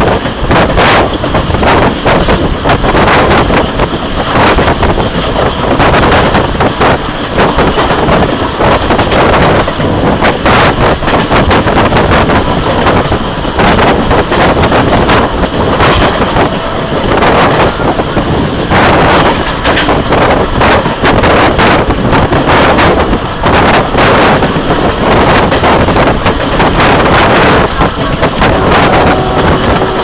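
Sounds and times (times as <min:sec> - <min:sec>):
train coach rattling: 0:00.0 - 0:30.0
train wheels clattering on track: 0:00.0 - 0:30.0.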